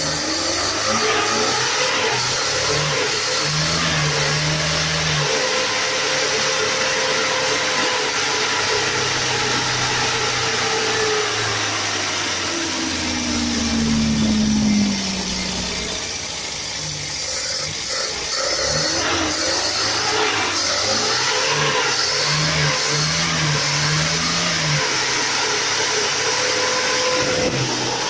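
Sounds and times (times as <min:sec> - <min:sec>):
car engine running: 0:08.1 - 0:25.2.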